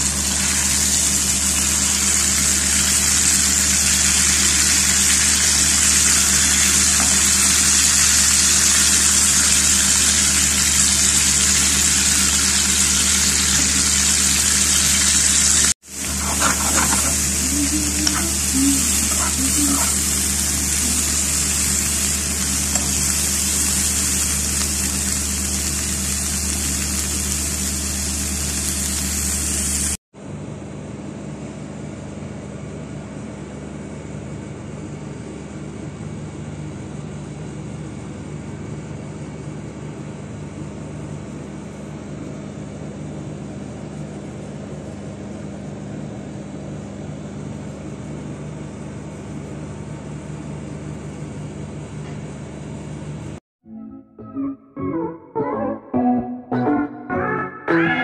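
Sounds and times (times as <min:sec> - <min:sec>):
vegetables sizzling in a pan: 0:00.0 - 0:30.0
spatula scraping: 0:15.9 - 0:21.2.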